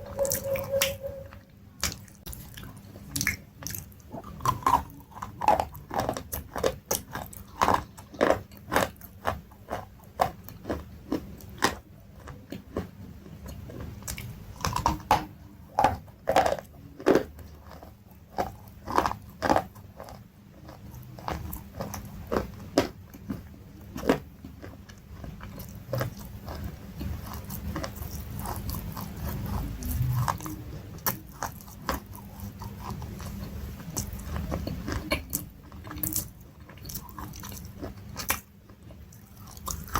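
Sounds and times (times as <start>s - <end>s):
crunchy chewing: 0.0s - 39.9s.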